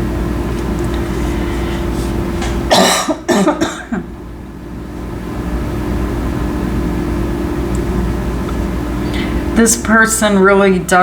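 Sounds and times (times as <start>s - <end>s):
low background hum: 0.0s - 11.0s
person coughing: 2.7s - 4.1s.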